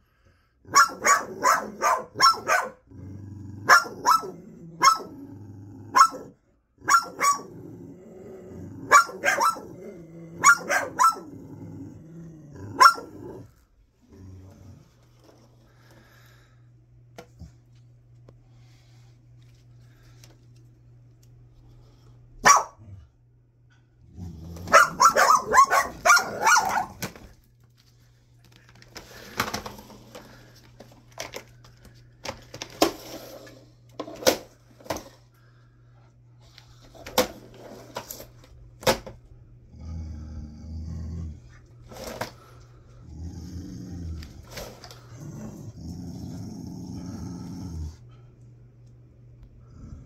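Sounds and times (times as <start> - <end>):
steady low hum: 0.0 - 50.0
dogs barking: 0.7 - 2.9, 3.6 - 5.2, 5.9 - 7.5, 8.8 - 9.8, 10.4 - 11.3, 12.7 - 13.3, 22.4 - 22.9, 24.6 - 27.1.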